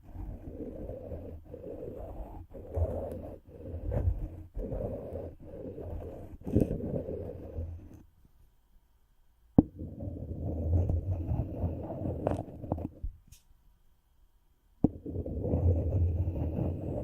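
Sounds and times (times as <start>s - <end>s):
microphone rubbing scratch: 0.0s - 8.0s, 9.7s - 13.2s, 14.8s - 17.0s.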